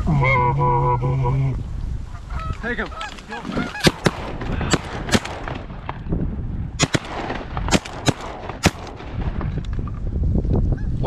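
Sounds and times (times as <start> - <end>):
shotgun blasts: 3.8 - 6.0, 6.8 - 9.4.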